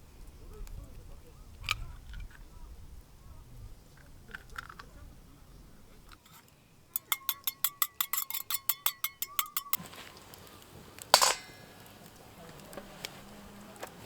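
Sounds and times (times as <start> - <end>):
utensil clinking on metal cup: 6.1 - 12.2.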